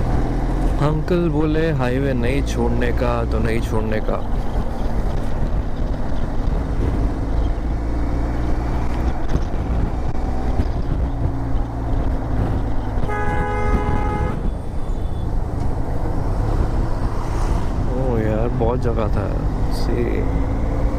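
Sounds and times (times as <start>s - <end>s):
motorcycle engine cruising: 0.0s - 20.9s
road and wind noise: 0.0s - 20.9s
vehicle horn honking: 13.0s - 15.2s.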